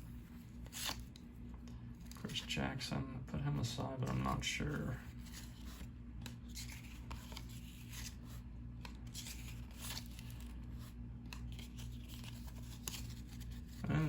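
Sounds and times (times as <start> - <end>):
steady low hum: 0.0 - 14.0
paper cards swishing: 4.0 - 14.0.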